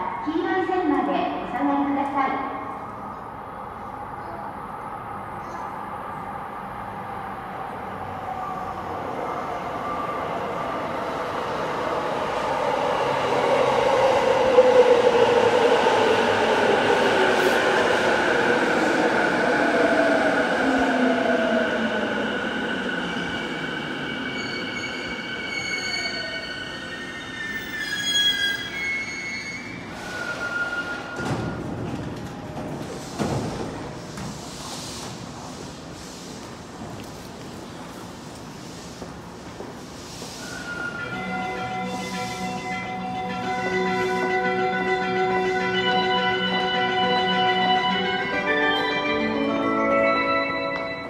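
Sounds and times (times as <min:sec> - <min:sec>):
train braking: 0:11.5 - 0:31.8, 0:40.1 - 0:51.0
train doors opening: 0:23.0 - 0:37.7.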